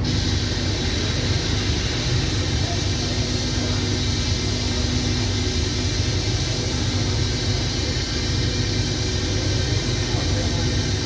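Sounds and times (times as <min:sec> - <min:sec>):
train idling rumble and hum: 0:00.0 - 0:11.0.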